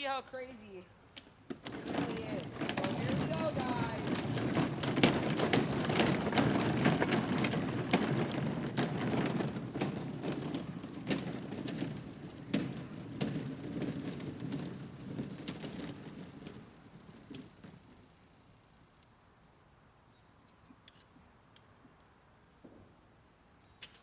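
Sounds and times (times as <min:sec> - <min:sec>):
bicycle rattling and clicking: 0:01.5 - 0:18.1.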